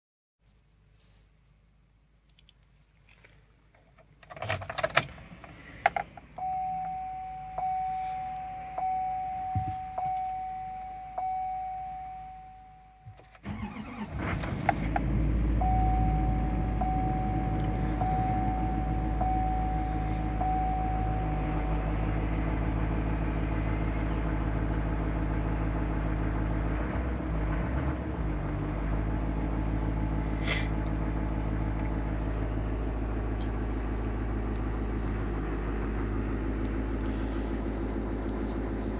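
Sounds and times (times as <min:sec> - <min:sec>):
diesel engine idling: 0:05.1 - 0:12.7, 0:13.4 - 0:38.9
dashboard warning chime: 0:06.4 - 0:14.0, 0:15.5 - 0:22.2
diesel engine cranking and starting: 0:13.2 - 0:38.9.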